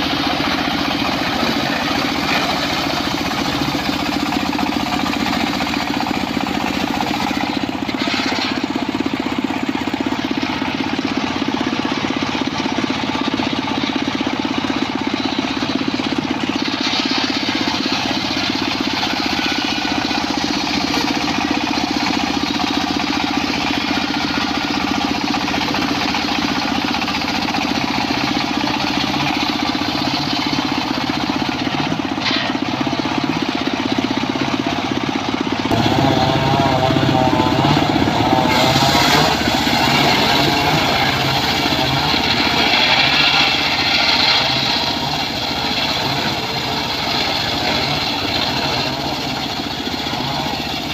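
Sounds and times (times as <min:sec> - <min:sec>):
saw blade cutting wood: 0:00.0 - 0:11.2, 0:16.0 - 0:33.4, 0:35.7 - 0:50.9
circular saw drone: 0:35.6 - 0:50.9.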